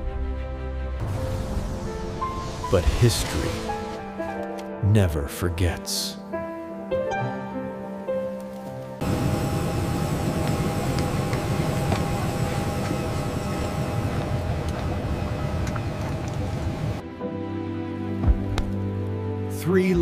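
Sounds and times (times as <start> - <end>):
jet engine rumble: 9.0 - 17.0.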